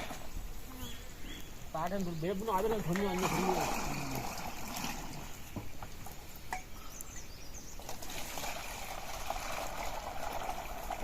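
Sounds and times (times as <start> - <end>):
bird chirp: 0.7 - 2.9, 6.4 - 8.0
rushing water: 1.5 - 6.8, 7.7 - 11.0.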